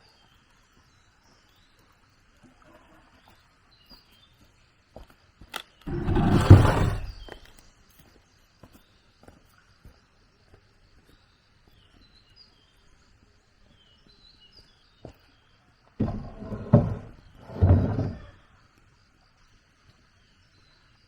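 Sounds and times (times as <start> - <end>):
building work thumps: 5.9 - 7.5, 16.0 - 18.4.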